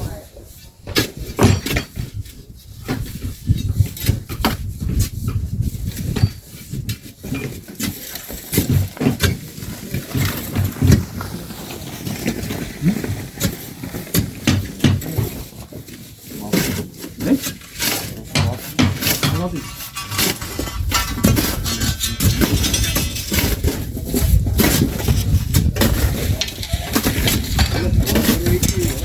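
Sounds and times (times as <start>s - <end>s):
shovels scraping into sand: 7.6s - 29.0s.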